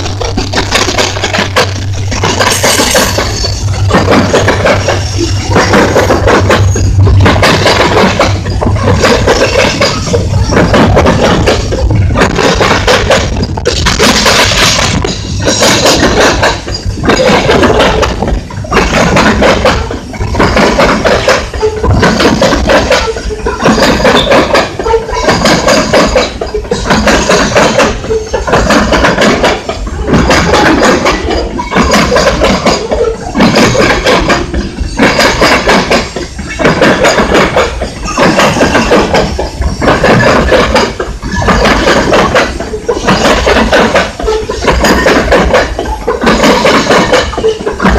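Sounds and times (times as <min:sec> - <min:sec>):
train wheels clattering: 0:00.0 - 0:47.9.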